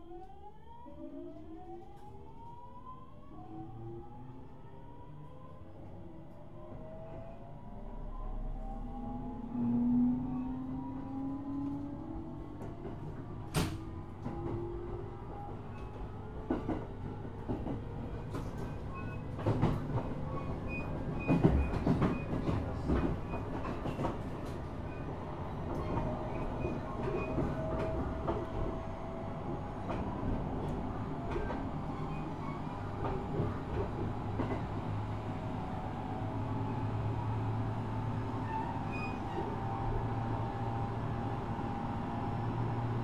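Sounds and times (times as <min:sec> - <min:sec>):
train wheel-on-rail rumble: 0:05.9 - 0:43.0
rail joint clicks and knocks: 0:10.9 - 0:35.1.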